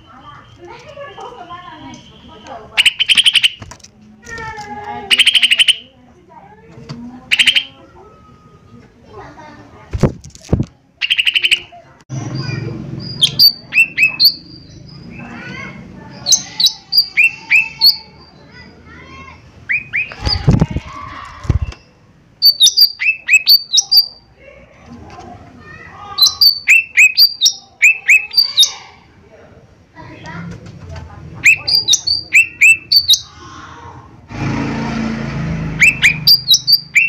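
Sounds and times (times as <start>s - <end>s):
bird singing high chirps: 0.0s - 3.6s, 5.1s - 5.9s, 7.3s - 7.8s, 11.0s - 18.8s, 19.7s - 20.6s, 21.5s - 24.3s, 26.2s - 28.8s, 31.4s - 33.3s, 35.8s - 37.0s
soft chattering warbles: 5.0s - 5.9s, 31.4s - 33.6s.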